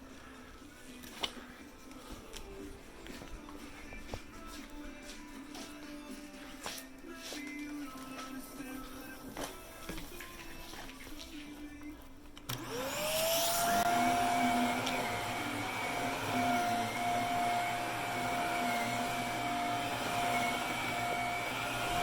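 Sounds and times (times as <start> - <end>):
vacuum cleaner motor whine: 12.5 - 22.0.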